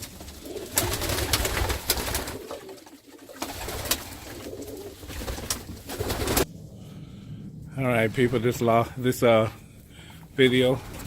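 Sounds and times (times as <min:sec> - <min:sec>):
pigeons cooing: 0:00.0 - 0:06.5.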